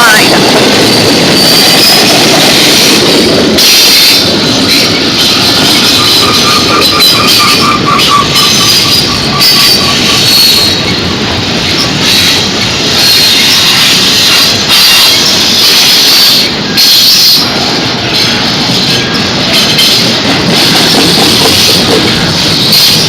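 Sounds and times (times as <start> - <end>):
train wheels rumbling on rail: 0.0 - 23.0
high-pitched wheel squeal: 3.6 - 11.0.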